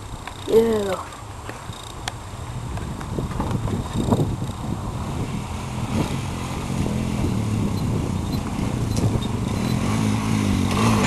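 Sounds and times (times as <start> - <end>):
atv engine revving: 3.8 - 11.0.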